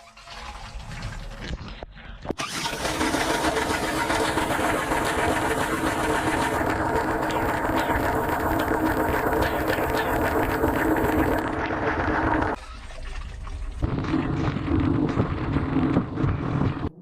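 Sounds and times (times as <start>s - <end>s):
water spraying in a dishwasher: 2.4s - 12.8s
steady hum: 3.0s - 12.6s.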